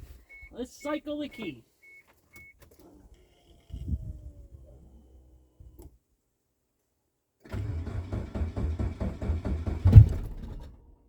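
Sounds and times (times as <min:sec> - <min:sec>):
car engine cranking on starter: 0:07.4 - 0:11.0.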